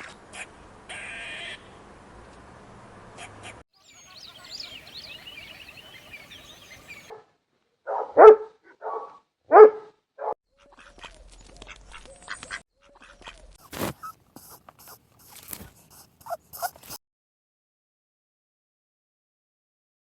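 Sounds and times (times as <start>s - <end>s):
dog barking: 6.9s - 10.4s, 16.2s - 16.9s.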